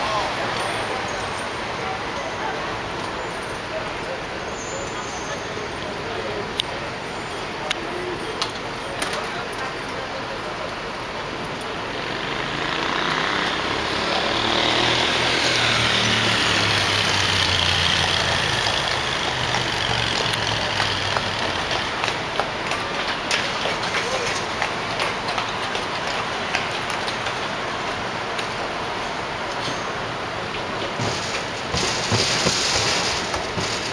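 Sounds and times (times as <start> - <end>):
heavy vehicle engine running: 11.2 - 29.3.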